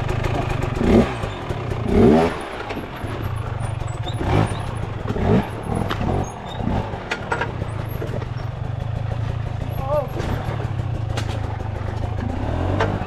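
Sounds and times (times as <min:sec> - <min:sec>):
dirt bike engine idling: 0:00.0 - 0:13.0
dirt bike throttle blips: 0:00.0 - 0:13.0.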